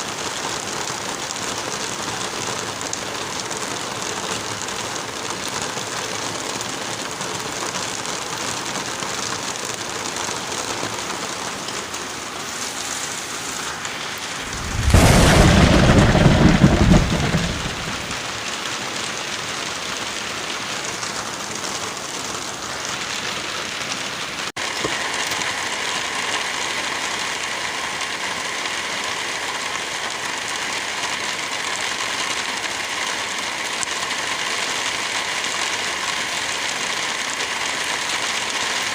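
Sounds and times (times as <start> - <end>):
steady rain: 0.0 - 38.9
thunder rumble: 14.2 - 18.3.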